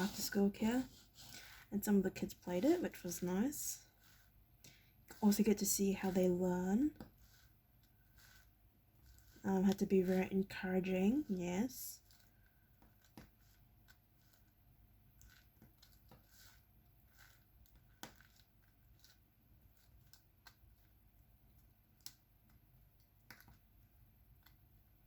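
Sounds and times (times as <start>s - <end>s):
small clicks and taps: 21.9s - 23.7s.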